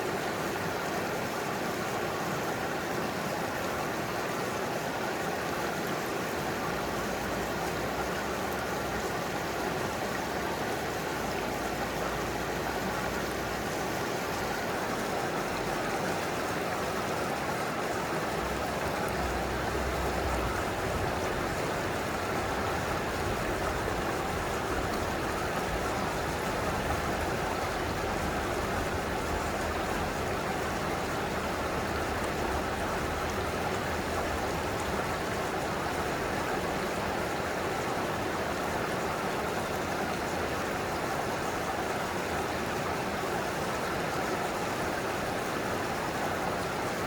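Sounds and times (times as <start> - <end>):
mountain stream flowing: 0.0 - 47.0.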